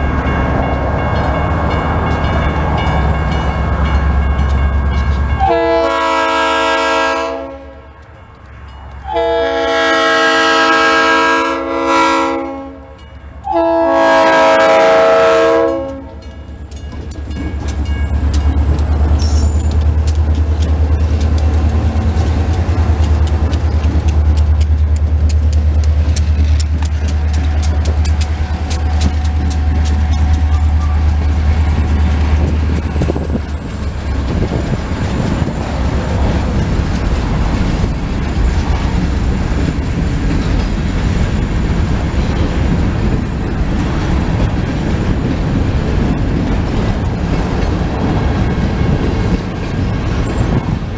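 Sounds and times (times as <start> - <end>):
train rumbling past: 0.0 - 50.9
locomotive air horn: 5.4 - 7.9, 9.1 - 16.2
wheels clacking over rail joints: 15.8 - 50.9.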